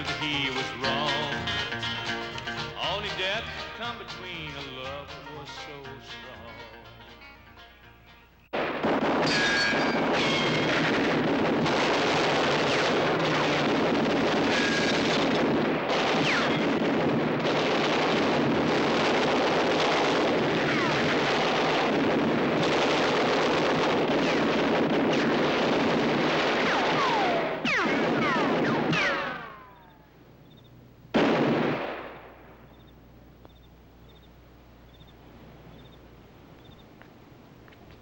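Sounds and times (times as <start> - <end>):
heavy gunfire: 8.5 - 30.0, 31.1 - 32.6
falling whistles: 29.0 - 30.7.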